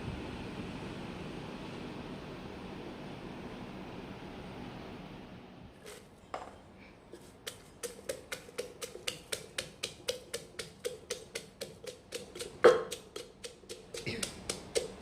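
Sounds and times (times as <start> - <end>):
wooden pestle pounding in mortar: 7.4 - 15.0.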